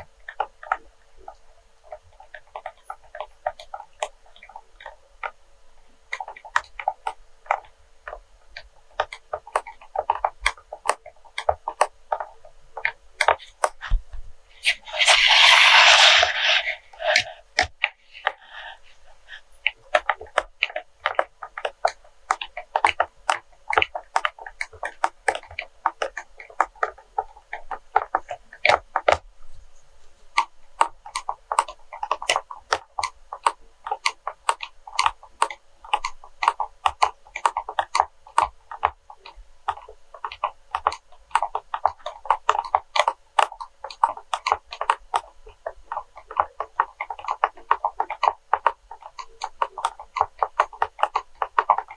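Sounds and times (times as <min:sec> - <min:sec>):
tapping and clicking on wax: 0:30.4 - 0:51.9.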